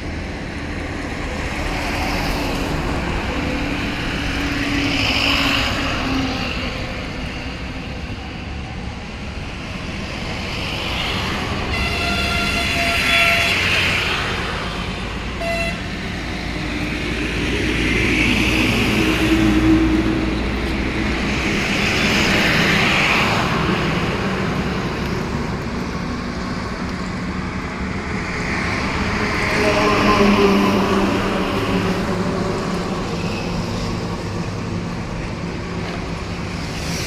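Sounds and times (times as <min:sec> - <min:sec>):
traffic rumble: 0:00.0 - 0:37.0
car horn toot: 0:11.7 - 0:13.7, 0:15.4 - 0:15.9.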